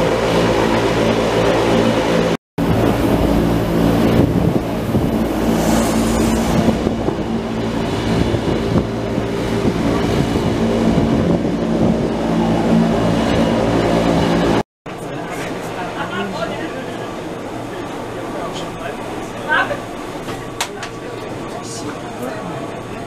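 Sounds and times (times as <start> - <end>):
wind noise: 0.0 - 14.6
wheels rumbling on rail: 2.1 - 14.6
electric motor hum: 2.6 - 7.8.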